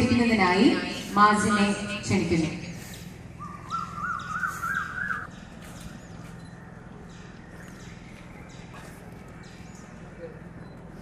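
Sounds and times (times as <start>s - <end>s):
steady low hum: 0.0s - 11.0s
bird calling rising notes: 2.8s - 8.6s.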